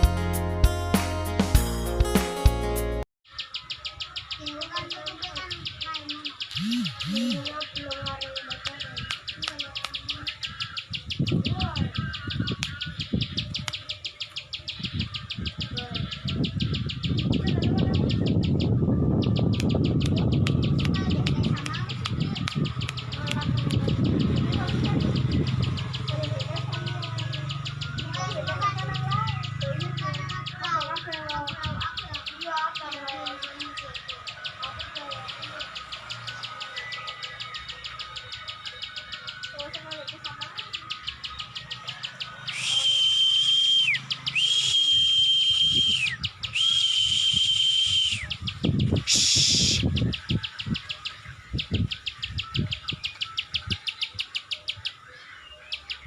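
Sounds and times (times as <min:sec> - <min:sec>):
small birds chirping: 0:03.3 - 0:56.0
bird clicking calls: 0:03.4 - 0:17.5, 0:19.3 - 0:50.8
loud hissing whistle notes: 0:42.5 - 0:48.3, 0:49.0 - 0:49.8.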